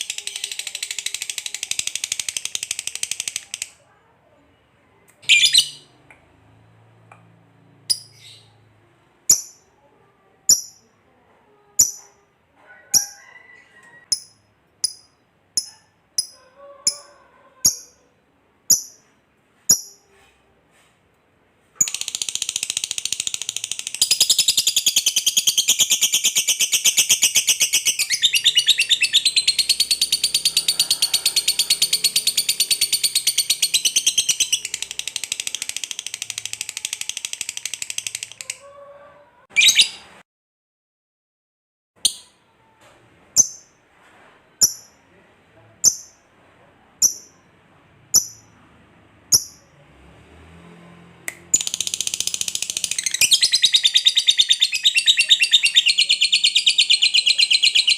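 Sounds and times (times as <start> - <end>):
bird chirping and trilling: 5.2 - 5.9, 7.9 - 8.6, 11.8 - 12.1, 21.8 - 38.4, 39.5 - 40.1, 47.0 - 47.4, 48.2 - 48.5, 51.5 - 57.9.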